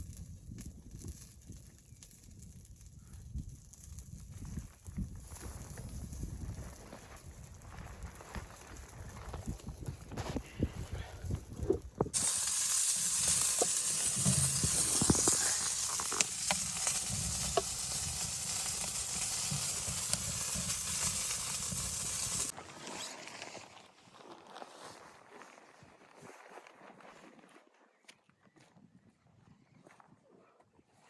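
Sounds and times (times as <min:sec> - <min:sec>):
food sizzling in a pan: 0:12.1 - 0:22.5
oil popping: 0:12.1 - 0:22.5.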